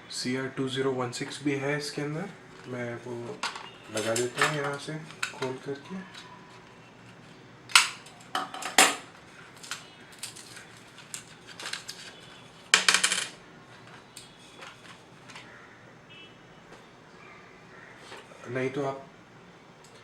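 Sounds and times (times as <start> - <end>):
small metallic clicks and scrapes: 3.4 - 15.5.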